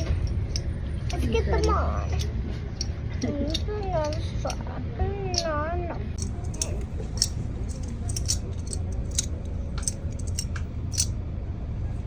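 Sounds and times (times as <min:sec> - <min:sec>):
sharp clicks and ticks: 0:00.0 - 0:04.6, 0:06.2 - 0:11.2
steady low rumble: 0:00.0 - 0:12.0.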